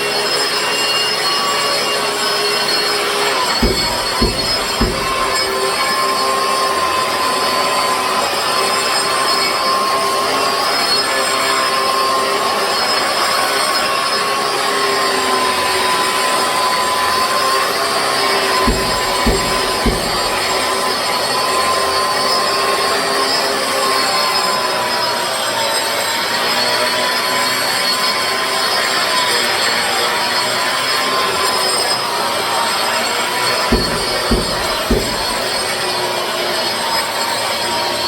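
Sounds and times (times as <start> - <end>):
short knocks: 3.6 - 5.8, 18.7 - 20.9, 33.7 - 35.7.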